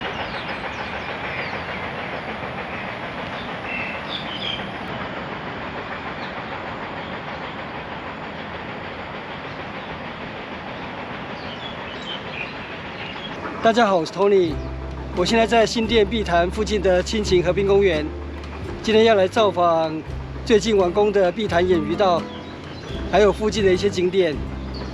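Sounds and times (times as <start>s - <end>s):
river water rushing over a weir: 13.5s - 24.9s.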